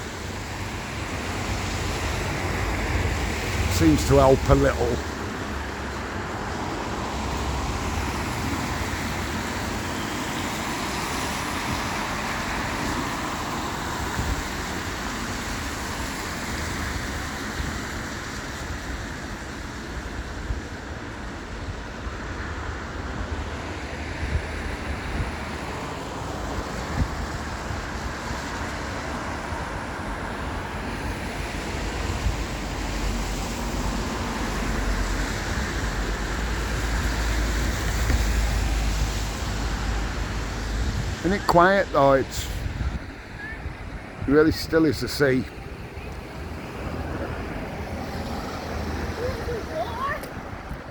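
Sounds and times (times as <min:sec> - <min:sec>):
cars passing on wet road: 0:00.0 - 0:50.9
wind rumble on microphone: 0:19.9 - 0:41.3, 0:42.4 - 0:44.3, 0:45.5 - 0:50.9.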